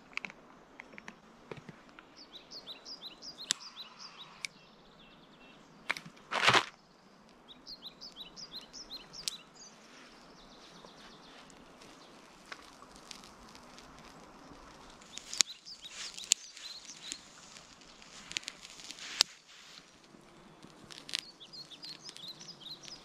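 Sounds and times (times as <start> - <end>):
songbird chirping: 0.0 - 23.0
scattered clicks: 3.3 - 3.7, 11.5 - 23.0
loud crunch: 5.9 - 6.8, 10.7 - 23.0.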